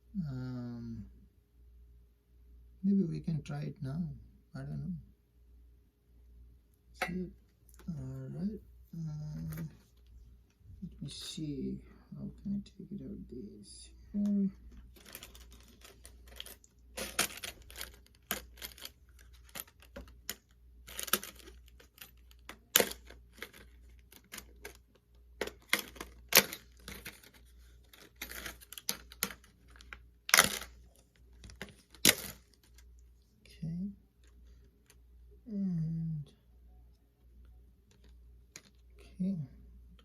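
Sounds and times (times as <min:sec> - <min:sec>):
packaging rustling and tearing: 0:14.9 - 0:24.8, 0:25.4 - 0:32.8.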